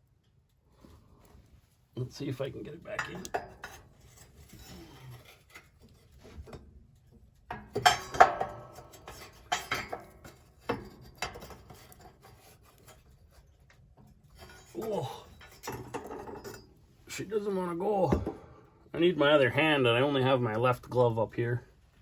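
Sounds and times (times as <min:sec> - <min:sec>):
metal tube scraping and clinking: 0:02.8 - 0:17.2.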